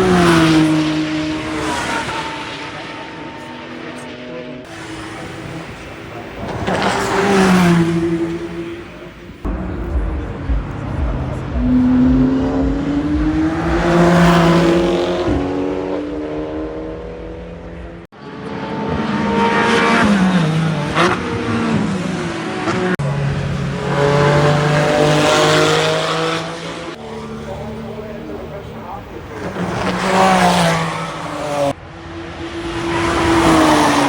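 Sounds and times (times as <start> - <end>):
muffled race car engines passing: 0.0 - 34.0.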